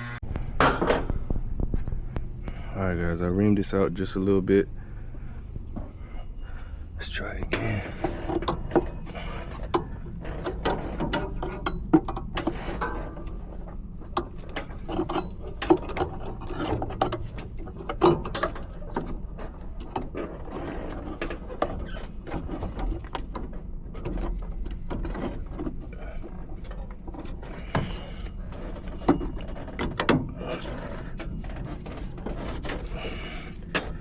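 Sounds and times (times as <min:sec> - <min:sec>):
metallic clicks and scrapes on tubing: 0:07.4 - 0:34.0.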